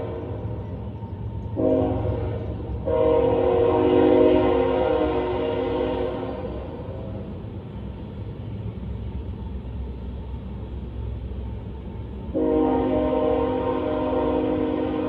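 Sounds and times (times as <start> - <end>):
low train rumble: 0.0 - 15.0
locomotive air horn blasts: 1.6 - 6.7, 12.3 - 15.0.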